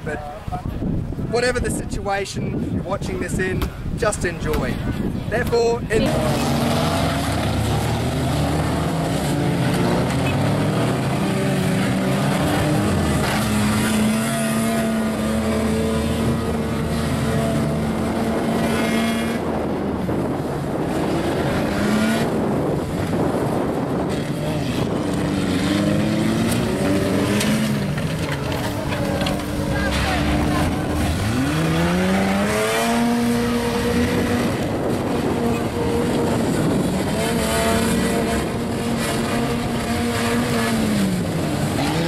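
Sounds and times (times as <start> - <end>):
car engines revving: 3.0 - 42.0.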